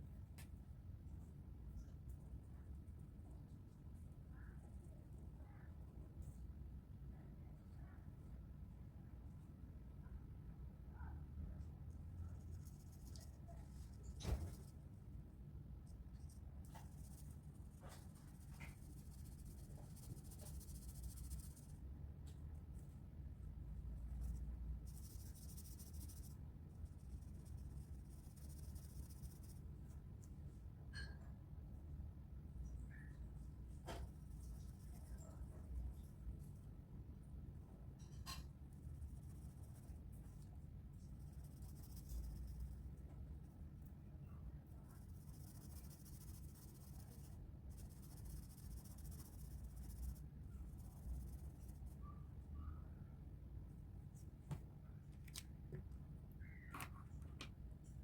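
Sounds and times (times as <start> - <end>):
faint low hum: 0.0 - 58.0
colouring strokes on paper: 15.9 - 21.8, 24.1 - 29.7, 44.8 - 52.1
pencil scratching on paper: 44.9 - 52.0.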